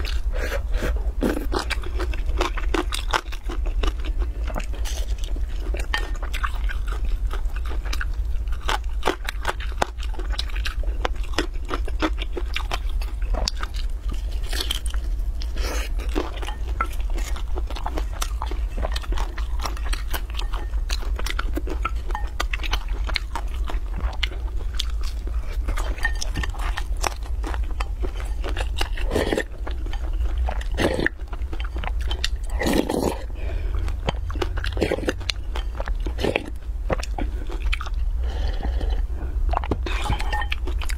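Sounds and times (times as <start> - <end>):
chewing and crunching pastry: 0.0 - 40.9
steady low hum: 0.0 - 40.9.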